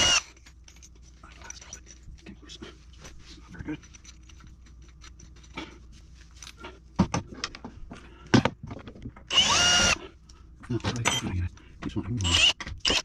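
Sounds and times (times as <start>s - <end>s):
cordless drill running: 0.0s - 0.3s, 9.3s - 10.0s, 12.2s - 13.0s.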